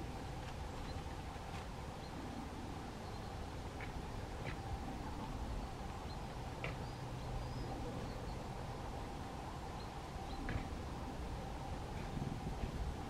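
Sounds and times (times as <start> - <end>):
faint hum: 0.0 - 13.0
songbirds chirping: 0.0 - 13.0.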